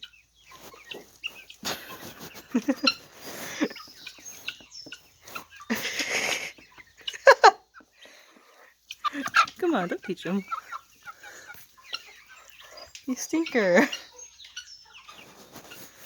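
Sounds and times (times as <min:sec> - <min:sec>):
chicken clucking and squawking: 0:00.0 - 0:16.0
scratchy noise: 0:01.6 - 0:03.7.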